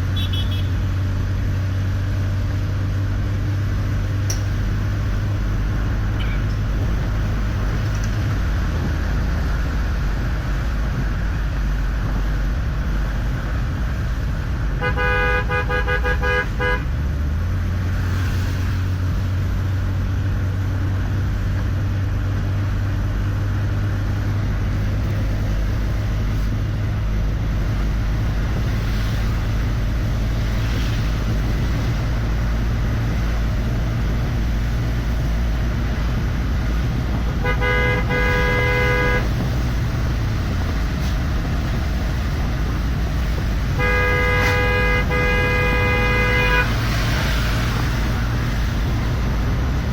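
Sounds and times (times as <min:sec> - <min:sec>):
vehicle rumbling along highway: 0:00.0 - 0:49.9
vehicle horn: 0:00.1 - 0:00.9, 0:14.8 - 0:16.9, 0:37.4 - 0:39.4, 0:43.7 - 0:47.0.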